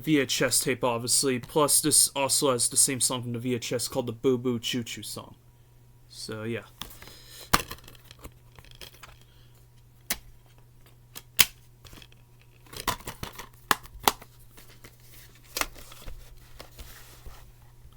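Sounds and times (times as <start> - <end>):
faint steady hum: 0.0 - 17.9
plastic cases clicking: 11.2 - 15.9.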